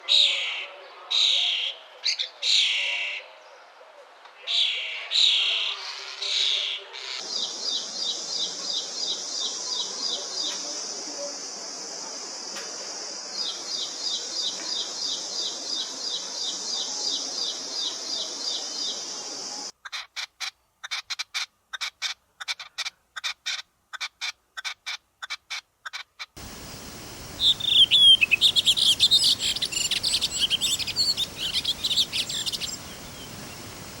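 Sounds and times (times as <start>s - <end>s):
birds chirping: 26.4s - 34.0s.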